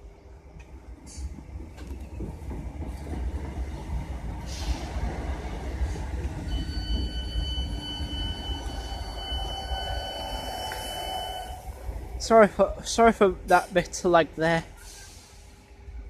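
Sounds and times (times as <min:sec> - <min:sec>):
train wheels rumbling on track: 0:00.0 - 0:16.0
high-pitched squeal: 0:06.5 - 0:11.8.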